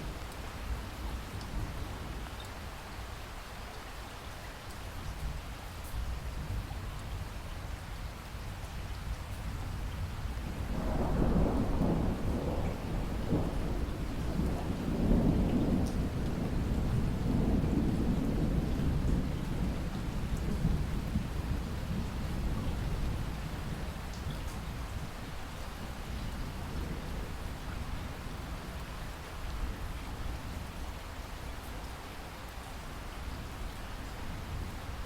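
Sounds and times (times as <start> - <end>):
steady rain falling: 0.0 - 35.0
thunder rolling: 10.6 - 23.2.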